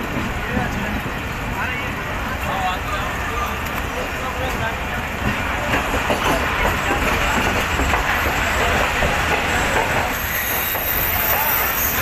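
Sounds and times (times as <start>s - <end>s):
train coaches rumbling over rails: 0.0s - 12.0s
high wheel squeal: 9.6s - 12.0s.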